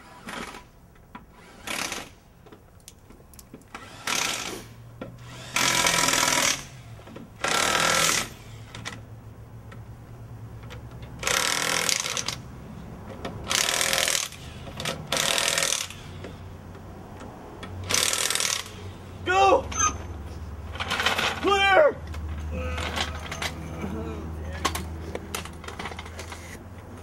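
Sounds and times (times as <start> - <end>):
impact wrench bursts: 0.0 - 0.7, 1.3 - 2.2, 3.7 - 9.0, 11.2 - 12.4, 13.4 - 16.4, 17.8 - 19.0.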